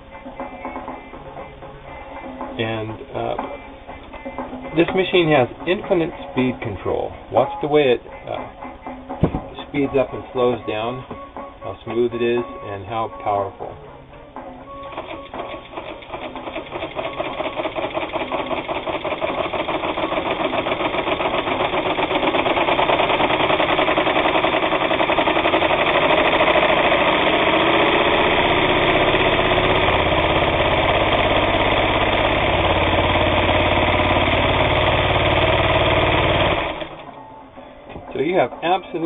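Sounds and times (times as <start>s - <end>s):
sewing machine stitching: 14.8s - 37.2s.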